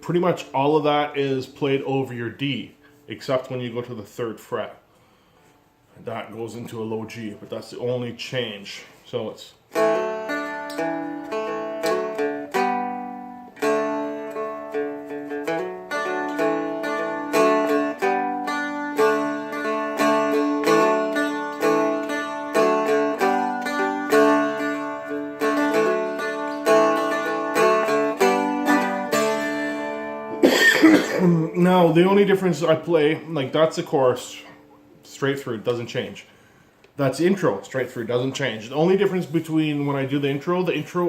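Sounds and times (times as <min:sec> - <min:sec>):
dulcimer strumming: 0:09.7 - 0:34.9.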